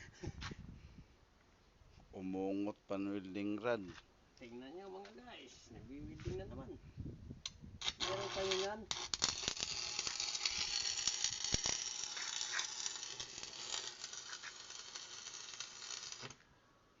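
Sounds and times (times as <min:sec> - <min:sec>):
welding arc crackling: 0:07.8 - 0:16.4.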